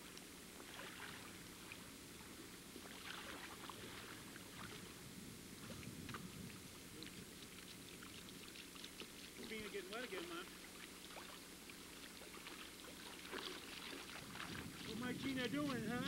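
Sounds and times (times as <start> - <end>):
low hiss: 0.0 - 16.0
shallow water lapping: 0.0 - 16.0
soft ticks: 0.1 - 0.3.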